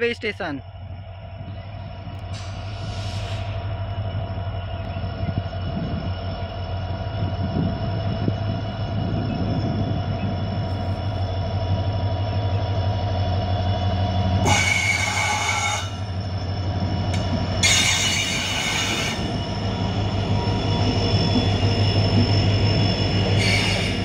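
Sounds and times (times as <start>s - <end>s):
locomotive engine drone: 0.0s - 24.0s
train wheels squealing on rails: 1.4s - 24.0s
harsh high screech: 14.4s - 16.2s, 17.6s - 19.6s, 23.4s - 24.0s.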